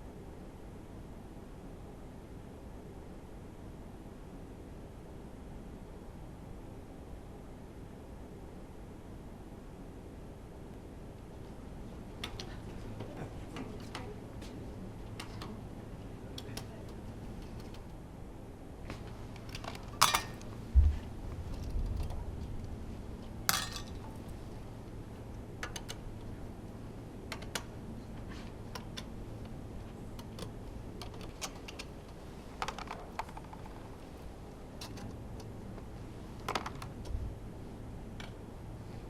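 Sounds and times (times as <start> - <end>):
steady low hum: 0.0 - 39.0
dull low thump: 20.8 - 21.1.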